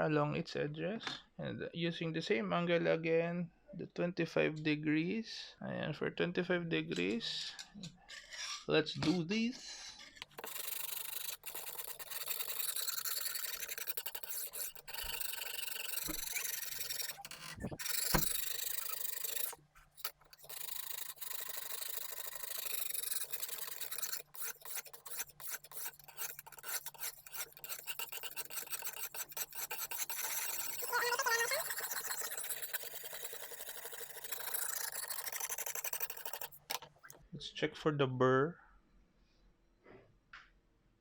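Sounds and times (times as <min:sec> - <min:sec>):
hone scraping knife edge: 0:07.8 - 0:08.7, 0:09.8 - 0:37.2.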